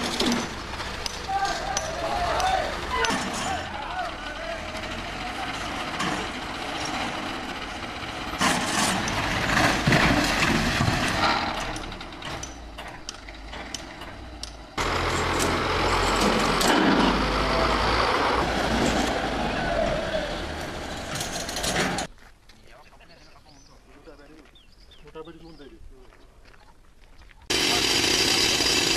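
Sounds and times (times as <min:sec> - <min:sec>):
rattling and clanking: 0:00.0 - 0:17.4, 0:20.5 - 0:22.1
heavy machinery engine running: 0:00.0 - 0:22.1, 0:27.5 - 0:28.9.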